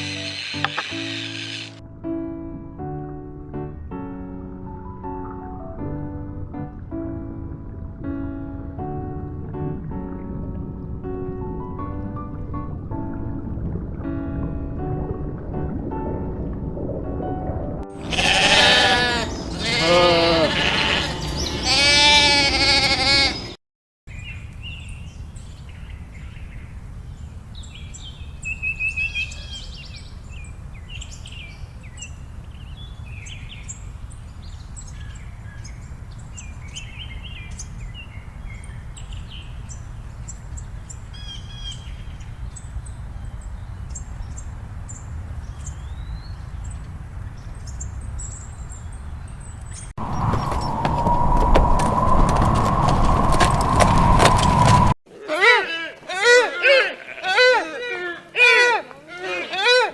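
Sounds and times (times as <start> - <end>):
animal bleating: 18.0 - 23.6, 56.8 - 57.6
high bird chirps: 19.0 - 22.2.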